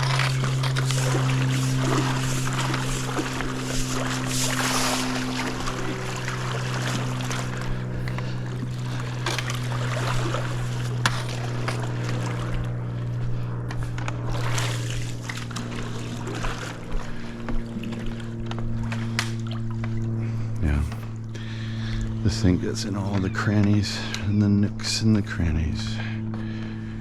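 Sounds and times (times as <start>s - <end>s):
pool brush scrubbing tile: 0.0s - 17.3s
steady low hum: 0.0s - 27.0s.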